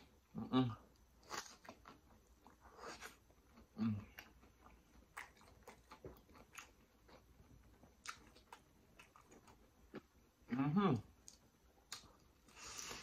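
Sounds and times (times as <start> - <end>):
crunchy chewing: 1.2 - 10.1.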